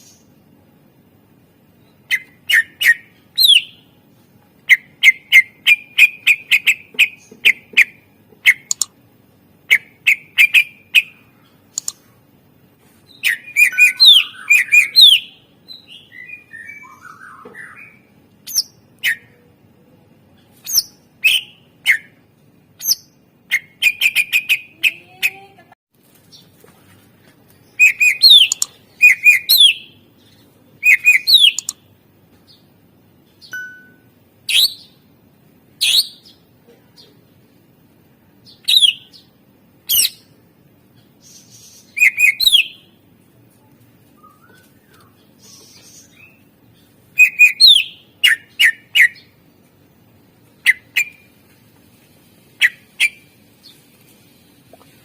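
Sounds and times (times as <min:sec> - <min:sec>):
bird singing chattering notes: 0:04.7 - 0:09.0, 0:27.7 - 0:32.0, 0:44.2 - 0:49.3.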